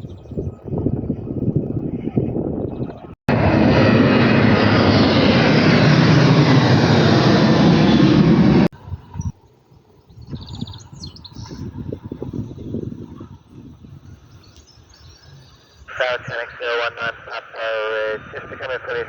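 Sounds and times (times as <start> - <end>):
airliner engines running: 0.1 - 9.4, 15.8 - 19.0
faint outdoor background: 8.7 - 19.0.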